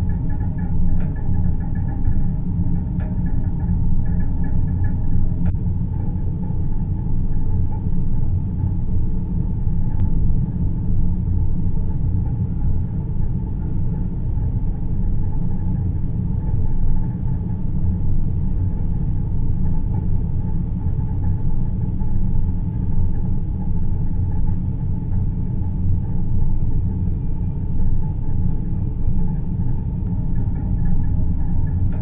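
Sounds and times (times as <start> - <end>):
faint high hum: 0.0 - 32.0
low rumbling drone: 0.0 - 32.0.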